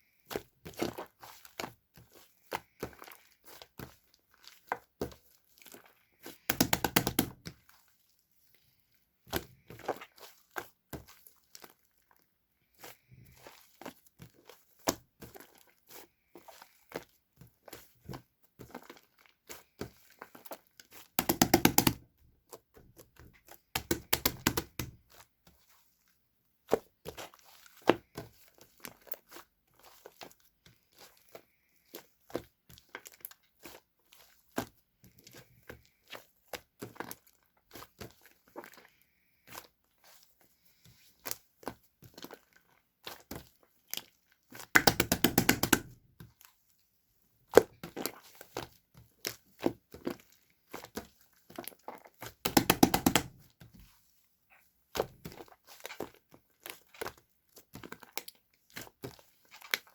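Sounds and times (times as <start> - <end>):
slime squished by hand: 23.0 - 25.3, 44.7 - 46.0, 51.8 - 53.5.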